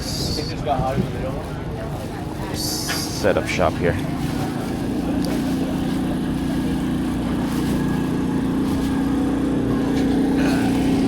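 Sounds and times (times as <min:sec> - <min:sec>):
motor droning: 0:02.8 - 0:11.0.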